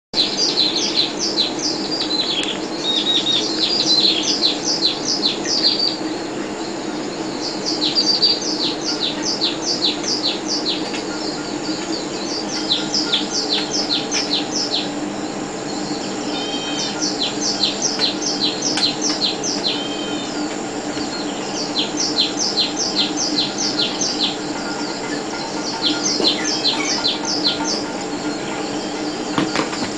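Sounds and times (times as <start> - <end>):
low steady hum: 0.2 - 29.9.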